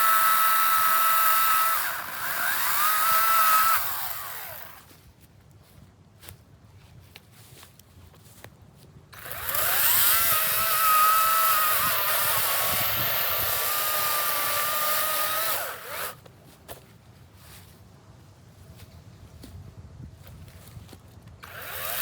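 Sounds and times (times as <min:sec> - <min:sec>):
chainsaw electric motor whine: 0:00.0 - 0:04.9, 0:09.2 - 0:16.2, 0:21.4 - 0:22.0.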